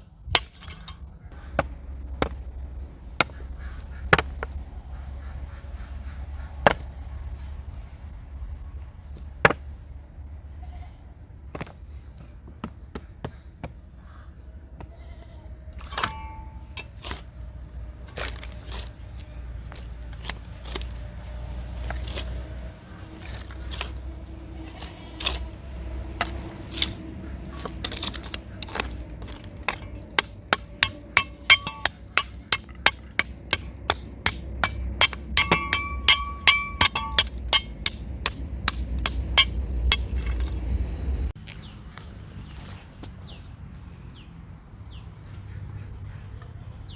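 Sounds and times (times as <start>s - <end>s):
hand tool striking wood: 0.4s - 1.0s, 15.9s - 16.6s, 27.8s - 40.6s.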